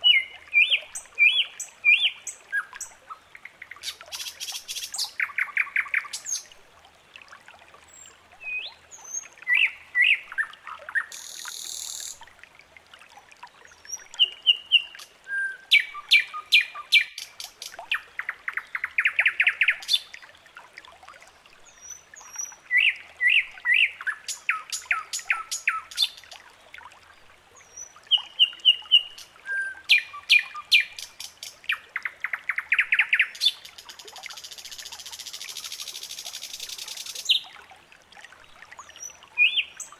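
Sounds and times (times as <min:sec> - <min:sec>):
songbird chirping and trilling: 0:00.0 - 0:06.5, 0:13.9 - 0:20.1, 0:21.7 - 0:26.4, 0:27.8 - 0:37.5, 0:38.8 - 0:39.9.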